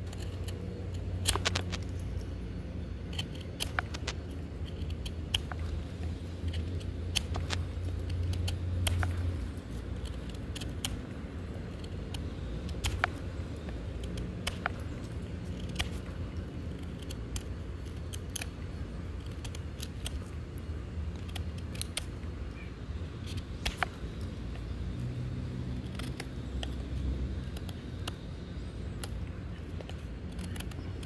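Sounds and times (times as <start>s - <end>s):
knife cutting wood: 3.1s - 22.2s, 29.0s - 31.0s.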